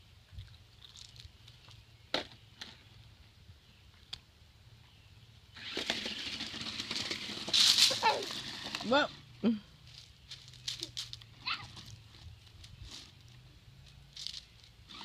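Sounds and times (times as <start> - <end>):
toy car electric motor whirring: 5.6 - 9.2.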